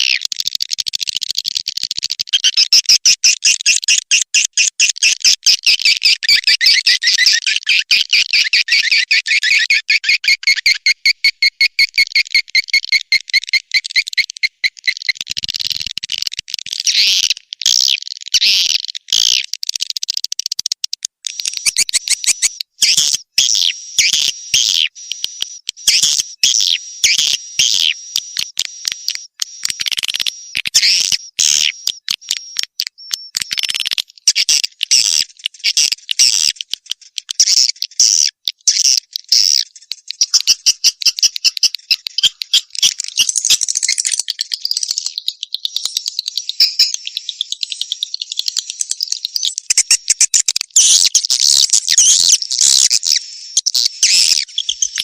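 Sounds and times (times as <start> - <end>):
swiftlet chirps and twitters: 2.3 - 16.0, 21.2 - 36.6, 37.4 - 55.0.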